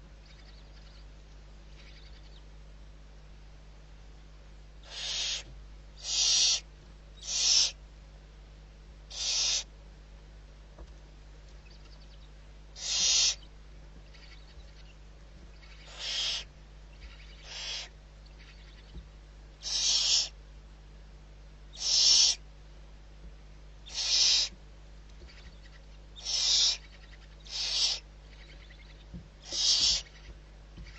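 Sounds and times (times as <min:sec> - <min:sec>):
owl screeching: 0:04.8 - 0:07.8, 0:09.1 - 0:09.7, 0:12.8 - 0:13.4, 0:15.6 - 0:18.8, 0:19.6 - 0:20.4, 0:21.7 - 0:22.4, 0:23.8 - 0:24.5, 0:25.3 - 0:30.9.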